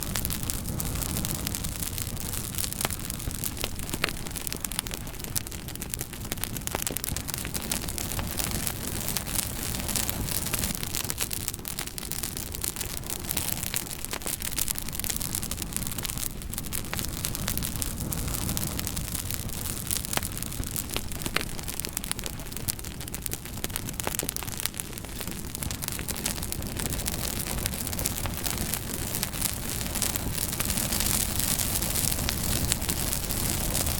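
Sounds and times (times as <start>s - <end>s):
wood fire crackling: 0.0s - 33.9s.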